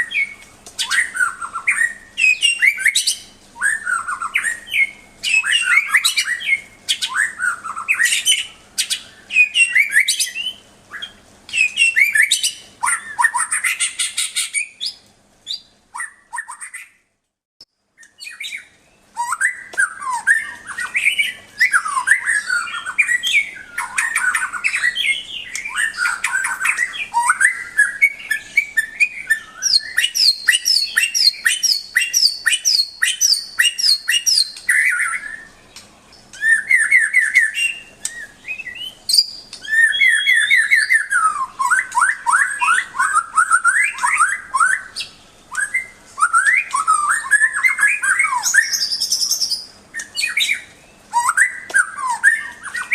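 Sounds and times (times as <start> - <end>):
songbird whistling song: 0.0 - 17.1, 17.9 - 52.9.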